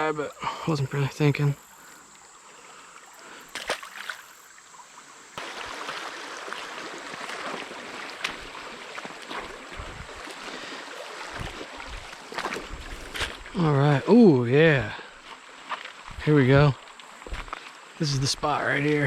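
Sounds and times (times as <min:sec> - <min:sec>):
creek water rushing: 0:00.0 - 0:19.0
small splashes and clicks: 0:02.9 - 0:04.4, 0:05.4 - 0:13.5.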